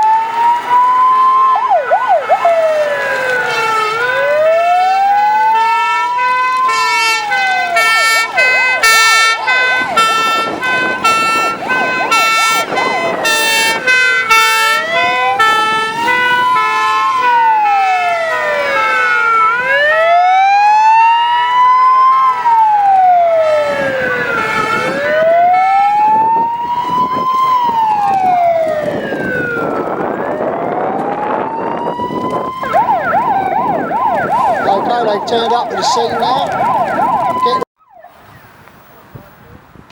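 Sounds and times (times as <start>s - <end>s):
two-tone siren horn: 0.0s - 38.3s
fast yelp siren: 0.0s - 38.5s
high-pitched sweeping siren: 0.0s - 38.5s
wailing siren: 0.0s - 38.5s.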